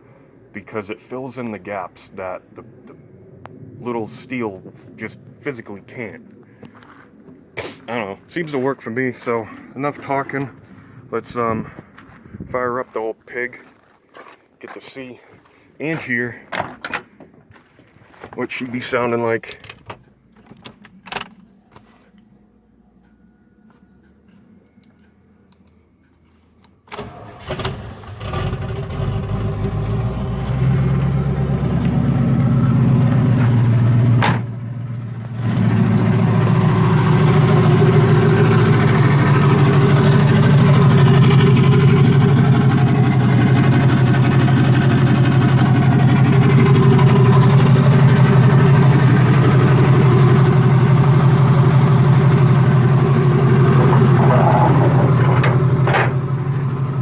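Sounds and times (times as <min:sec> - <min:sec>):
car engine starting and running: 0:26.8 - 0:57.0.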